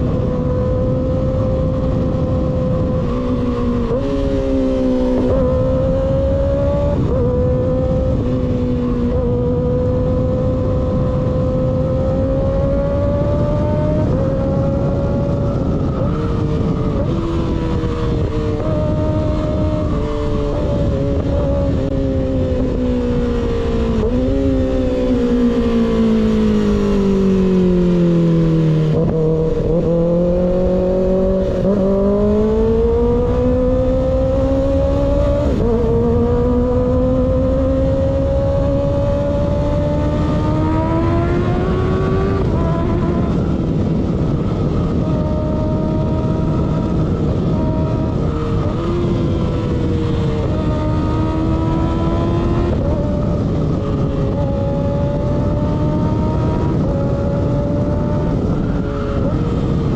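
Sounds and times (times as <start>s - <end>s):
motorcycle engine revving: 0.0s - 59.9s
wind rush: 0.0s - 59.9s.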